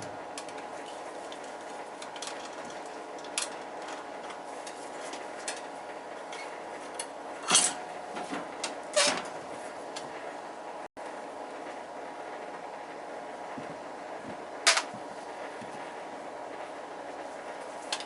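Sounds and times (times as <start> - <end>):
steady background hum: 0.0 - 18.0
metal tools clinking: 7.4 - 7.8.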